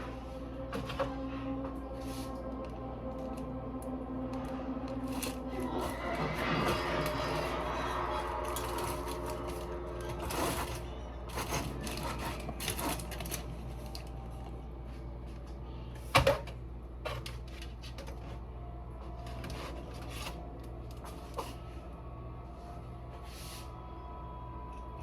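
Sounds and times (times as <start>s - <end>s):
steady low hum: 0.0s - 25.0s
utensils and cookware clattering: 5.0s - 14.1s.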